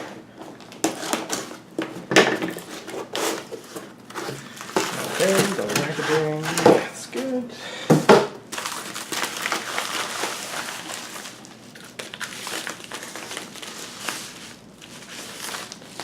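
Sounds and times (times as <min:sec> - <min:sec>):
packaging crinkling: 0:02.6 - 0:07.0, 0:08.5 - 0:16.0.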